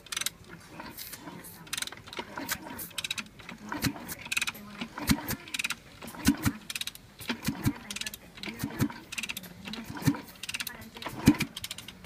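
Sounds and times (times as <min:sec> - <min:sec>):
metallic clicks and knocks: 0:04.2 - 0:12.0.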